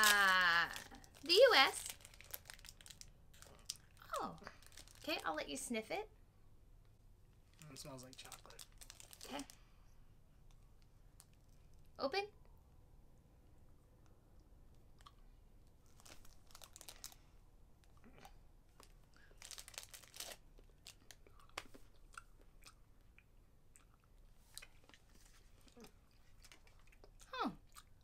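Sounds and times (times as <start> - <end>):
chewing with small crunches: 13.6 - 28.0.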